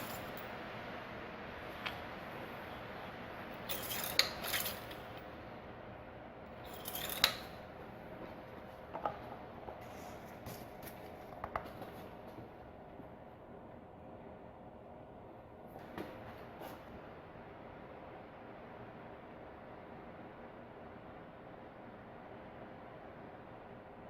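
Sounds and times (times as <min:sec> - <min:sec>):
metal tools clicking: 0:03.6 - 0:05.1, 0:06.7 - 0:07.6
metal parts scraping: 0:03.6 - 0:05.2, 0:06.7 - 0:07.6.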